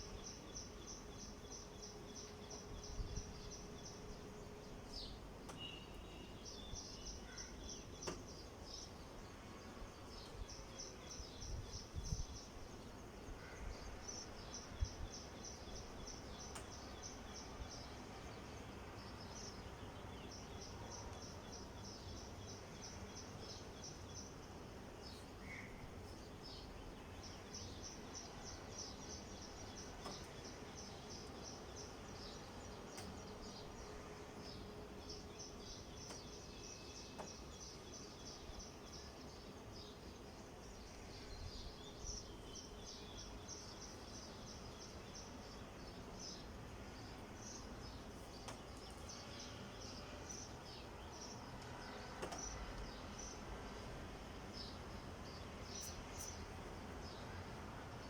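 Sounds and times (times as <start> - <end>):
faint background hiss: 0.0 - 58.0.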